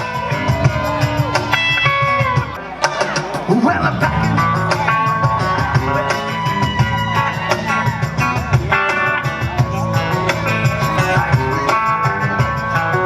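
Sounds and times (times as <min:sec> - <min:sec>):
electric guitar lines: 0:00.0 - 0:13.0
live rock band playing: 0:00.0 - 0:13.0.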